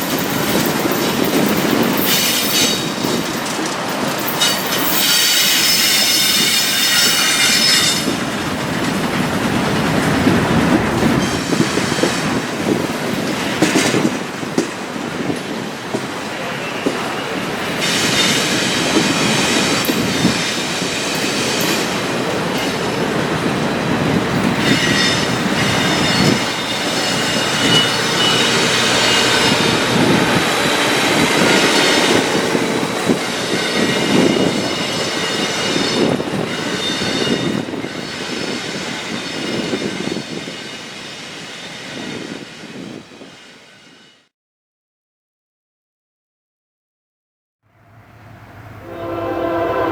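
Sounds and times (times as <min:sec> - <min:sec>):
train rumble and clatter: 0:00.0 - 0:44.3
train wheels squealing: 0:00.9 - 0:03.3, 0:04.2 - 0:08.2, 0:11.2 - 0:12.4, 0:16.6 - 0:22.8, 0:24.5 - 0:44.3.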